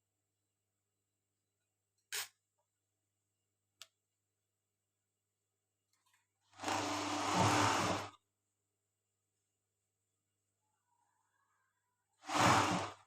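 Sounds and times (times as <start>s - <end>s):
overlock sewing machine stitching: 6.6s - 8.2s, 12.2s - 13.0s.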